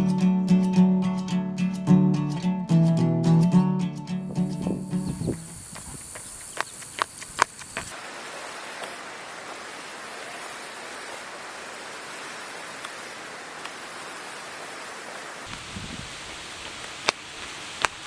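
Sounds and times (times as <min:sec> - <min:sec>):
insects chirring: 0:04.3 - 0:15.5
steady hiss: 0:04.8 - 0:18.0.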